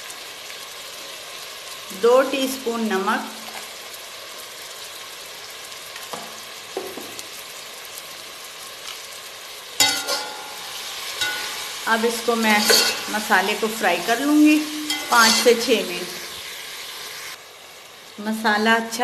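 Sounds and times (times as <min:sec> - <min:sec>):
food sizzling in a pot: 0:00.0 - 0:19.0
spoon scraping a metal pot: 0:09.8 - 0:10.6, 0:12.5 - 0:13.2, 0:14.6 - 0:15.7.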